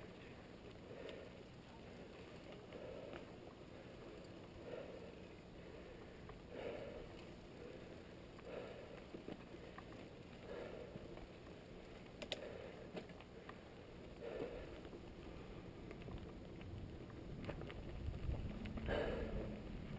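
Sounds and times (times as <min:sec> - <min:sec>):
bike clicks and rattles: 0:02.1 - 0:19.9
puffs of breath: 0:02.7 - 0:09.8, 0:10.4 - 0:11.1, 0:12.4 - 0:15.7, 0:18.8 - 0:19.7.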